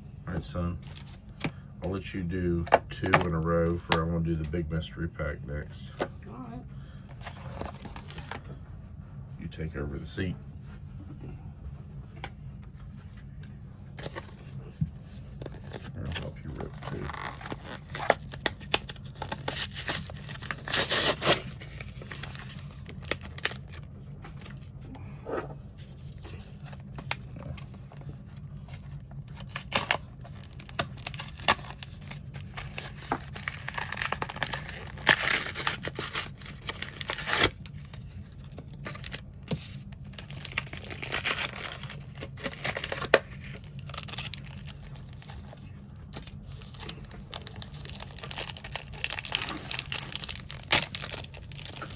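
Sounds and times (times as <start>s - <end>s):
low hum: 0.0s - 51.9s
card pack wrappers tearing: 15.4s - 23.8s, 28.5s - 51.9s.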